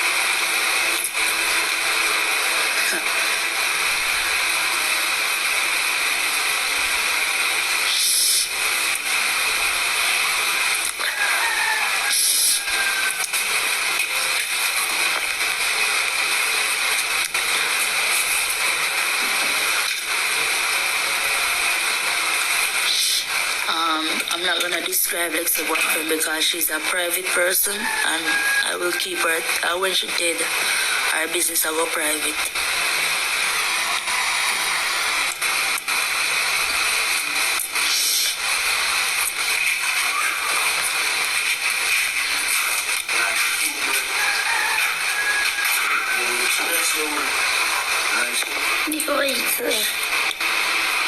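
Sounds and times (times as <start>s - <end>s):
static hiss: 0.0s - 51.0s
steady hiss: 28.7s - 51.0s.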